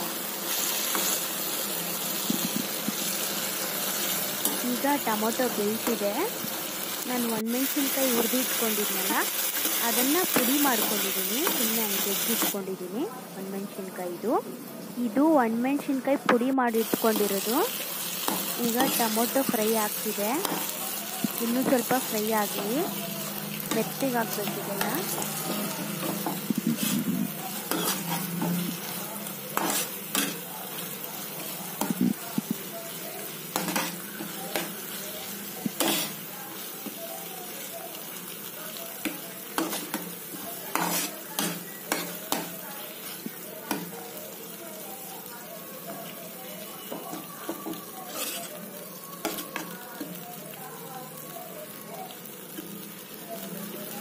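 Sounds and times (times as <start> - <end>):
tomatoes sizzling in oil: 0.0 - 54.0
metal spoon scraping a pan: 18.1 - 32.0, 35.8 - 36.2, 39.6 - 43.9, 46.9 - 48.6, 49.2 - 50.2.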